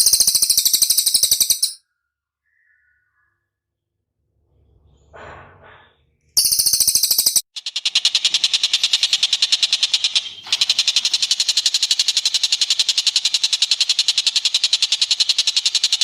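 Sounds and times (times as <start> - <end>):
bird rattling trill: 0.0 - 1.8, 6.4 - 16.0.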